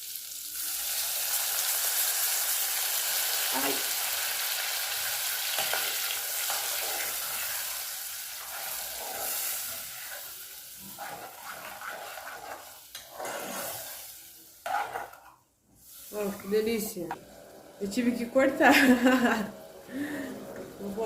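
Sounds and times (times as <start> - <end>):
meat sizzling in a frying pan: 0.0 - 14.7, 15.8 - 16.7.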